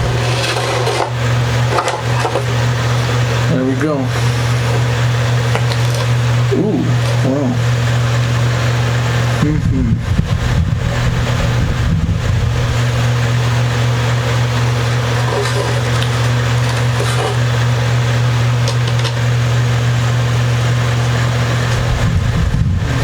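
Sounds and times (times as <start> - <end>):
rustling and handling knocks: 0.0 - 3.3, 4.1 - 6.2, 14.9 - 17.5
low hum: 0.0 - 23.0.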